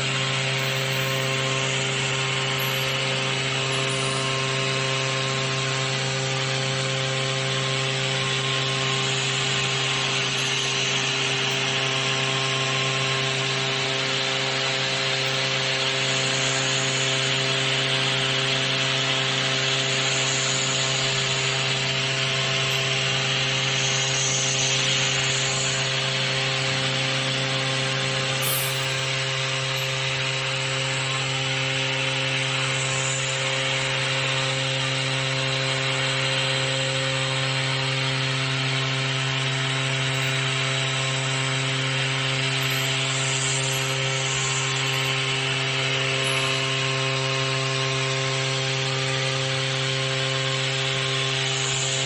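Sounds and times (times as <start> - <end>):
milling machine spindle running: 0.0 - 52.0
cutting hiss: 28.2 - 31.1.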